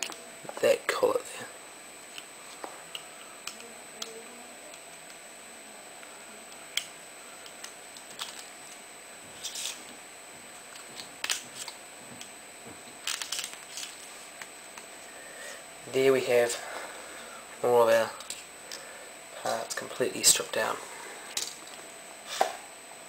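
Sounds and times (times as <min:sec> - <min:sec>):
small metal and plastic parts clicking: 0:13.0 - 0:14.0.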